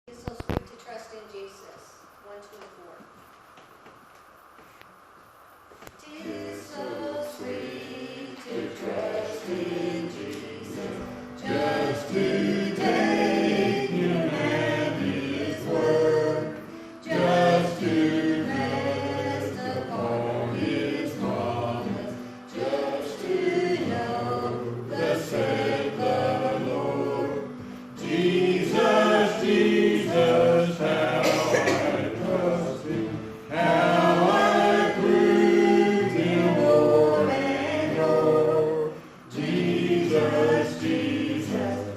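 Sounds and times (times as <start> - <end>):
choir singing a hymn: 6.0 - 41.9
singers breathing: 16.6 - 17.0.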